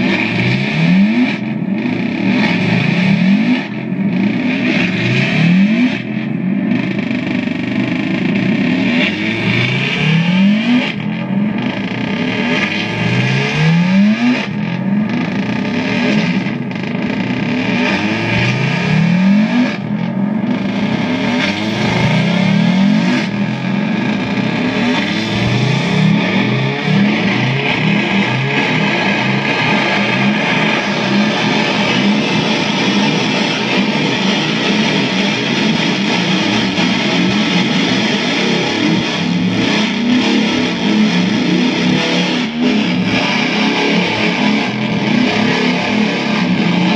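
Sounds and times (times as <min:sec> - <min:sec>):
distorted feedback noise: 0:00.0 - 0:46.9.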